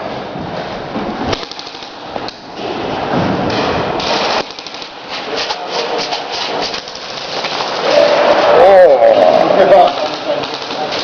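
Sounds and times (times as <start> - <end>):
airsoft guns firing bursts: 1.3 - 2.0, 4.0 - 7.9, 9.8 - 11.0.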